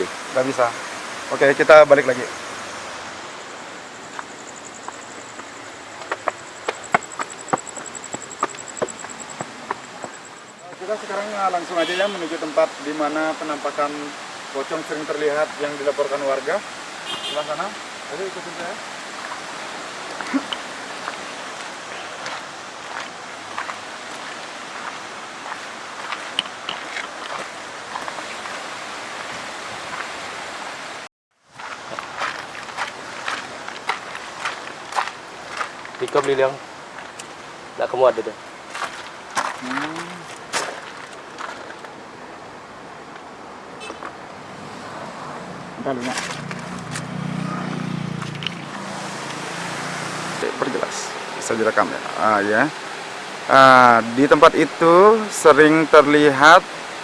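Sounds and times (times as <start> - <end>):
cricket trilling: 0.0 - 14.0, 14.6 - 22.5
steady rushing outdoor noise: 0.0 - 57.0.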